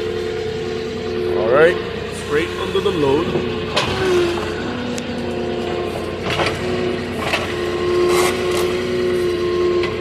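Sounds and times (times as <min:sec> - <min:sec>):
forklift running: 0:00.0 - 0:10.0.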